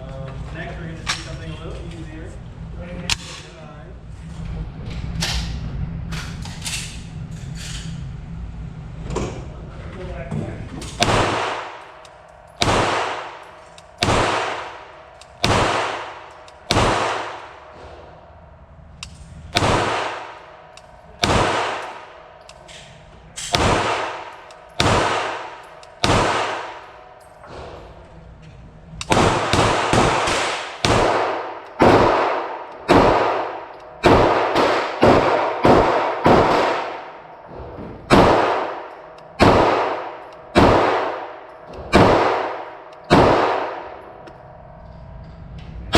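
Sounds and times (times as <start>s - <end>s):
pistol shots with ringing tail: 11.0s - 18.2s, 19.5s - 27.8s, 29.0s - 44.2s.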